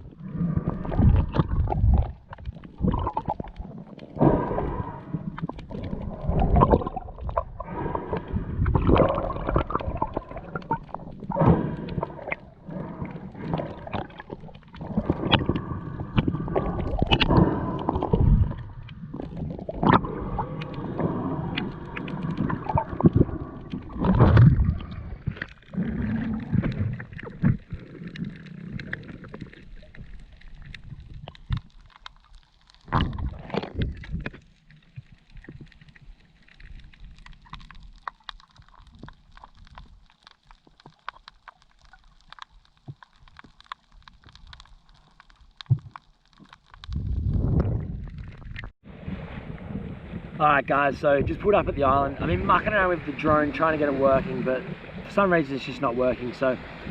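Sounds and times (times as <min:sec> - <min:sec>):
muffled water gurgling and sloshing: 0:00.0 - 0:56.9.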